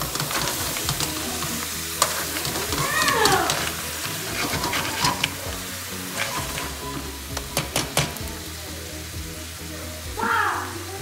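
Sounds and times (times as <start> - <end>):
spatula clacking on a pan: 0.0 - 8.5
crab sizzling in a frying pan: 0.0 - 11.0.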